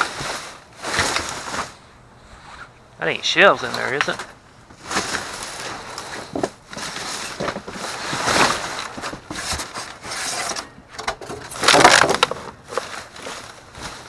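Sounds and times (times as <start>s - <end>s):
rummaging through trash: 0.0s - 1.9s, 3.5s - 14.0s.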